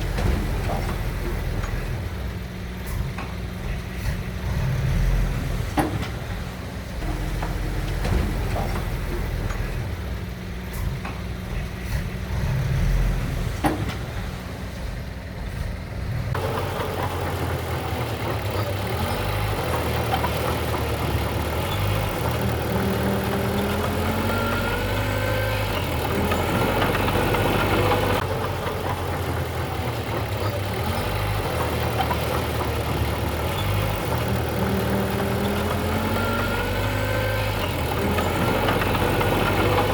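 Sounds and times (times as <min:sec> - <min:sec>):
diesel engine running: 0:00.0 - 0:39.9
loud rough machine noise: 0:10.7 - 0:39.9.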